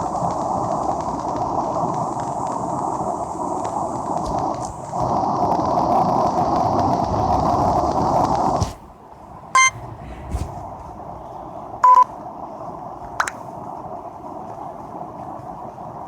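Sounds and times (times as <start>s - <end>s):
steady rushing noise: 0.0s - 15.4s
short electronic beeps: 9.6s - 9.8s, 11.8s - 12.1s.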